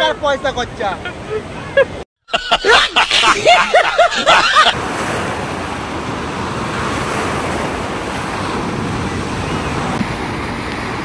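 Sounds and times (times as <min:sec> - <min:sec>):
sea waves breaking on beach: 0:02.6 - 0:11.0.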